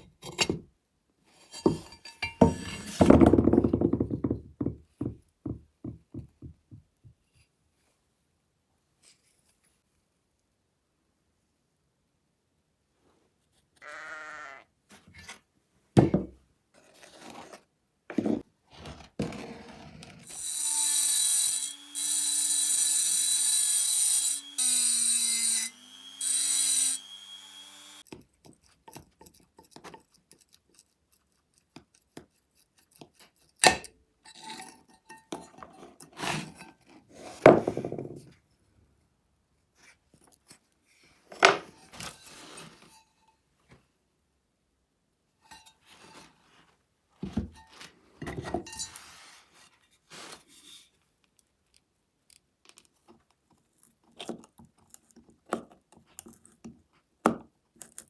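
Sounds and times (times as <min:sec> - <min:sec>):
electric power tool whirring: 0:20.2 - 0:28.0.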